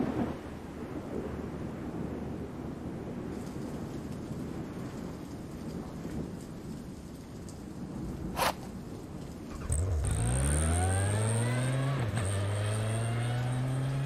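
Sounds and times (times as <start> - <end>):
sharp click: 8.4 - 8.7
motorcycle engine accelerating: 9.5 - 14.0.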